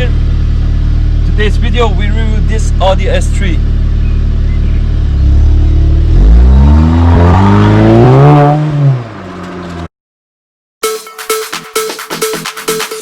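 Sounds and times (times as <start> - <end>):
car engine idling and revving: 0.0 - 9.9.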